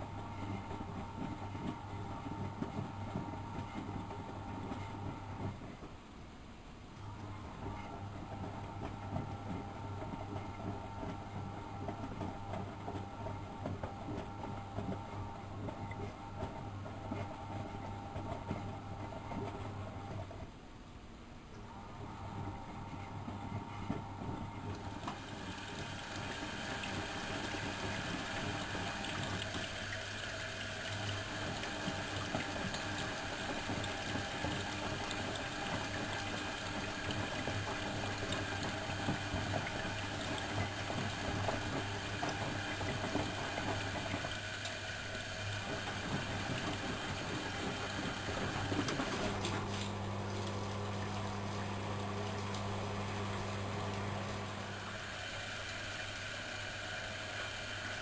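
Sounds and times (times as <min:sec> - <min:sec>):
water rushing in washing machine: 0:00.0 - 0:06.0, 0:07.0 - 0:20.4, 0:21.6 - 0:58.0
low machine hum: 0:21.3 - 0:58.0.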